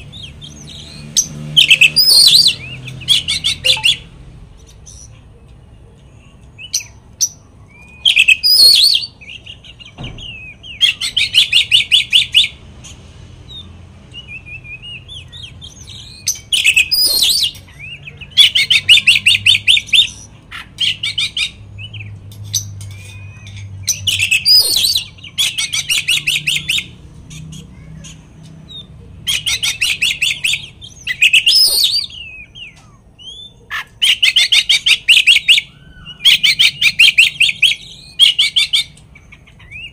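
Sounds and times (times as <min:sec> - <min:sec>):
magpie-robin singing: 0:00.0 - 0:39.9
bird sweeping whistles: 0:31.1 - 0:33.5.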